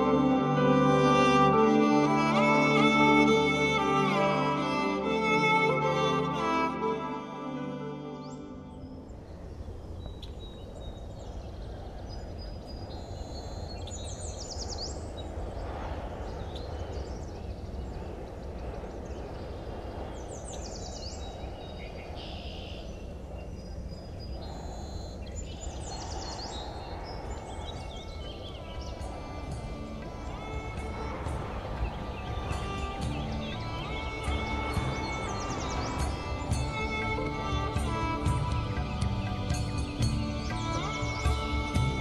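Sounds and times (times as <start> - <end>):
birds chirping: 0.0 - 42.0
steady low rumble: 23.0 - 42.0.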